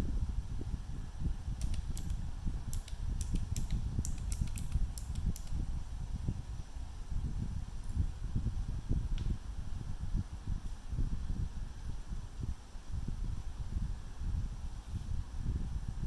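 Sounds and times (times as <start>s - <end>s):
small tools clicking and tapping: 1.6s - 5.6s.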